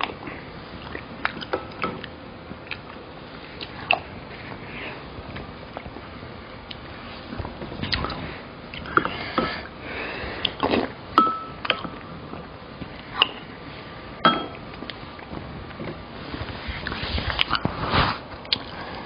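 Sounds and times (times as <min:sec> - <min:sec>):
chewing and slurping: 0:18.4 - 0:19.0.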